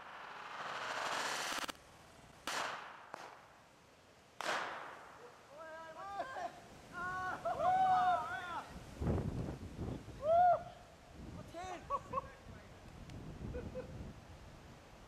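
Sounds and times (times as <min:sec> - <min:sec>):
fireworks cracks: 0:00.0 - 0:03.7, 0:04.4 - 0:05.3
people hooting and whooping: 0:07.0 - 0:08.7, 0:10.2 - 0:10.9.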